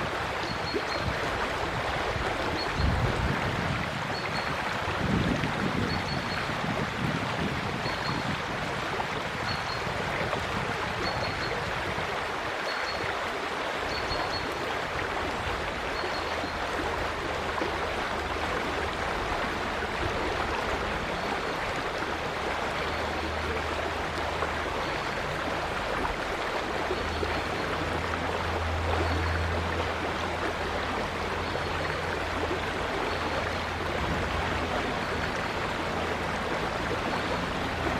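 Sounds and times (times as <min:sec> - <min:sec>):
river water rushing: 0:00.0 - 0:37.9.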